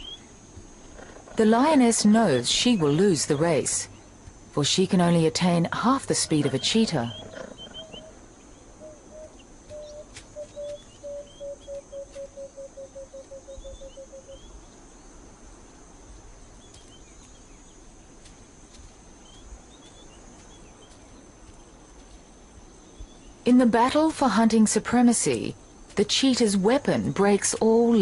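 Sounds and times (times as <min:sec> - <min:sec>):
high insect drone: 0:00.0 - 0:28.0
bird hooting: 0:06.0 - 0:14.6
small bird chirps: 0:06.5 - 0:14.6.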